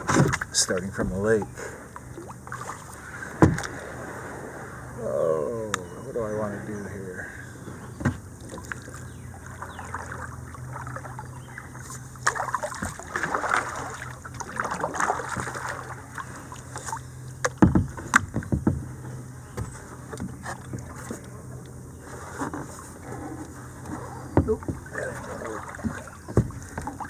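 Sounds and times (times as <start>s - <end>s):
paddle splashing in water: 0.0s - 5.2s, 7.6s - 27.0s
sharp knocks: 3.4s - 3.7s, 17.4s - 18.9s, 24.4s - 24.9s, 25.8s - 27.0s.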